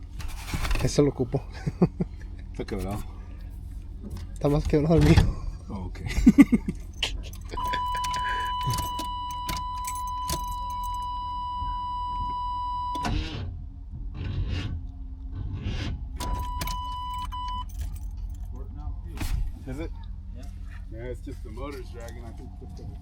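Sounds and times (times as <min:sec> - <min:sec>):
low rumble and clatter: 0:00.0 - 0:23.0
truck engine cranking: 0:00.0 - 0:23.0
high electronic beep: 0:07.6 - 0:13.0.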